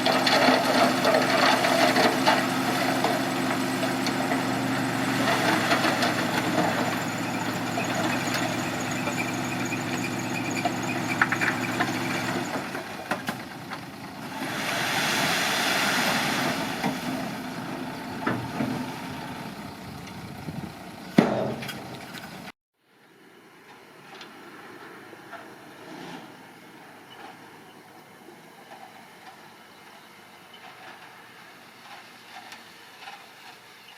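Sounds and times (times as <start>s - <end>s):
diesel engine running: 0.0s - 22.6s
rushing hiss: 14.3s - 17.3s.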